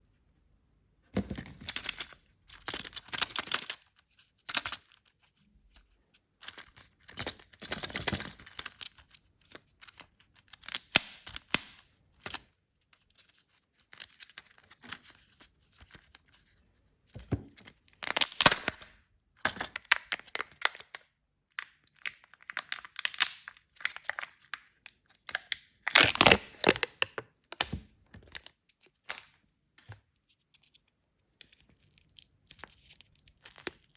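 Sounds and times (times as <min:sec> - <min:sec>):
wrappers tearing and crinkling: 0:18.0 - 0:18.8, 0:25.3 - 0:27.1.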